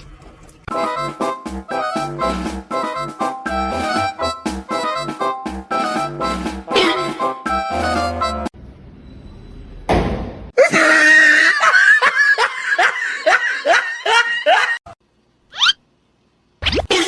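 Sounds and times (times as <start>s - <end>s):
short rising squeak: 8.9s - 9.8s
hearty laughter: 10.6s - 14.9s.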